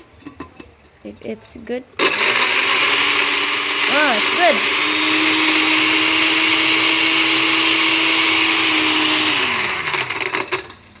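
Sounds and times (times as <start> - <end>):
blender crushing ice: 2.0 - 10.8.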